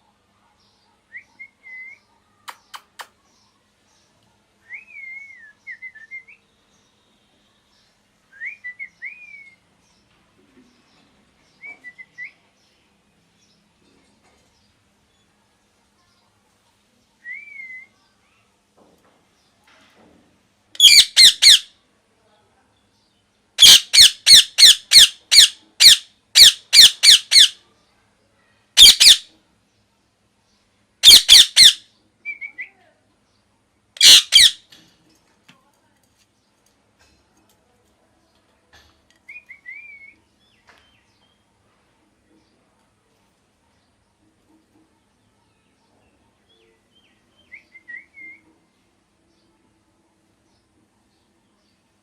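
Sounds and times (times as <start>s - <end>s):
parrot squawking: 20.8s - 21.7s, 23.6s - 27.6s, 28.8s - 29.3s, 31.0s - 31.8s, 34.0s - 34.7s.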